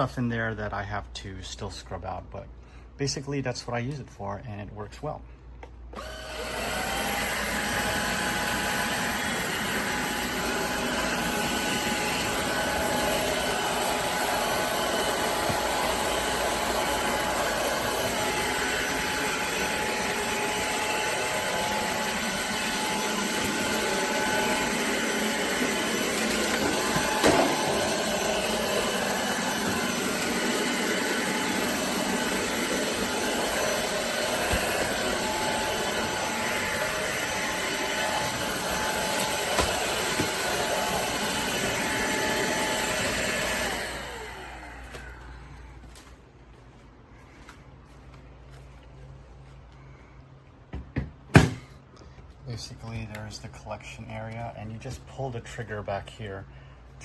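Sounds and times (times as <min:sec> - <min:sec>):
vacuum cleaner running: 0:05.9 - 0:46.1.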